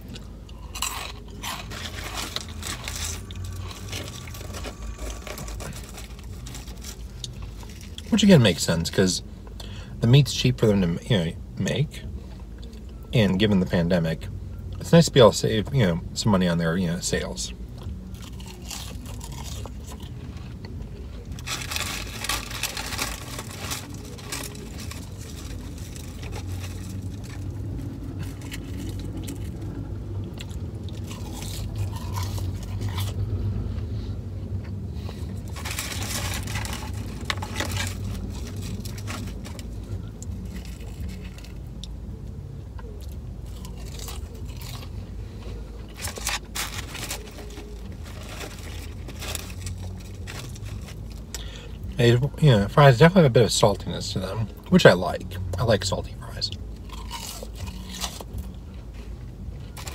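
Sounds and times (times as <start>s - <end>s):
person crunching fries: 0.0s - 8.9s, 17.1s - 33.4s, 34.6s - 42.0s, 42.8s - 51.9s, 54.7s - 59.9s
steady low hum: 0.0s - 59.9s.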